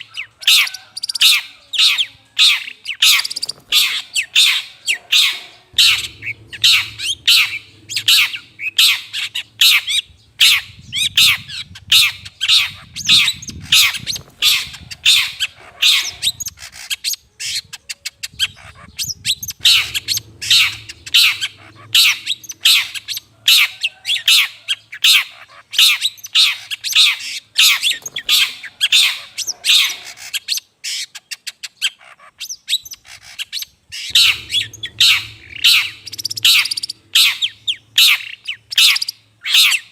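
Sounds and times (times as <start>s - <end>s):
shrike harsh rasping calls: 0.0s - 16.9s, 18.5s - 30.5s, 33.0s - 39.9s
fast bird chattering: 0.0s - 39.9s
low hum: 4.7s - 15.0s, 19.2s - 23.6s, 34.1s - 38.9s.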